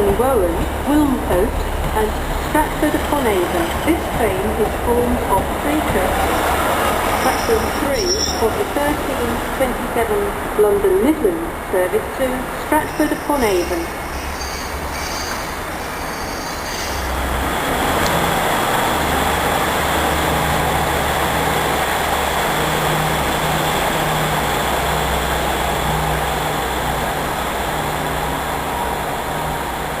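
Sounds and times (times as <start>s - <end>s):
diesel engine hum: 0.0s - 13.8s
train rumble: 0.0s - 30.0s.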